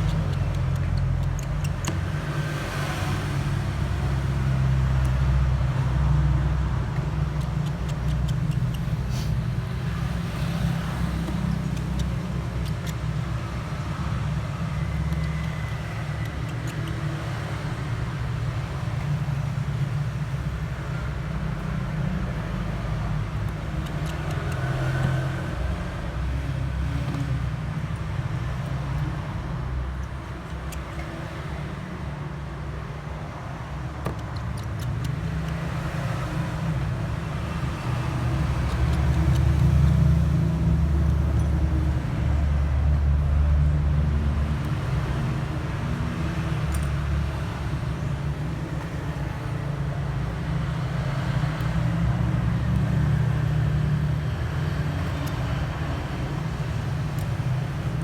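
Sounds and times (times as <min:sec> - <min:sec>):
road traffic rumble: 0:00.0 - 0:58.0
faint clicks: 0:04.8 - 0:19.6.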